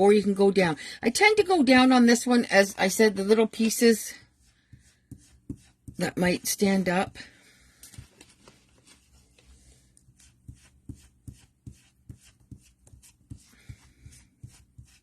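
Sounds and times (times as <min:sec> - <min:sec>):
brush tapping on paper: 0:04.6 - 0:06.4.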